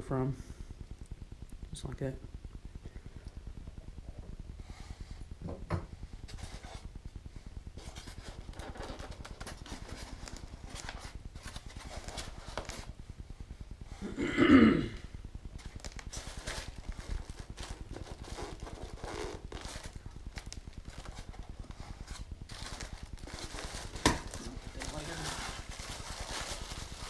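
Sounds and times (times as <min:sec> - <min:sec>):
packaging rustling: 0:07.8 - 0:12.9, 0:15.6 - 0:27.0.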